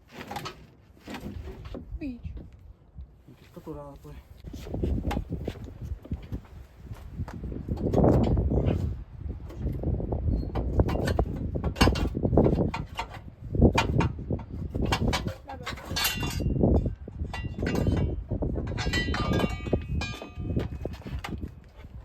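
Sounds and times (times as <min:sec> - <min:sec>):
metal tools clinking: 0:14.9 - 0:16.6, 0:18.7 - 0:21.3.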